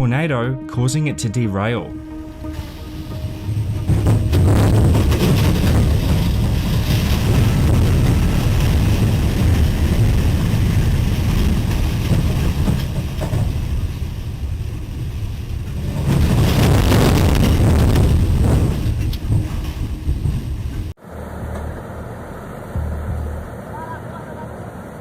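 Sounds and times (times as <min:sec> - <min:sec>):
train running: 0:02.1 - 0:25.0
tornado wind rumble: 0:02.2 - 0:25.0.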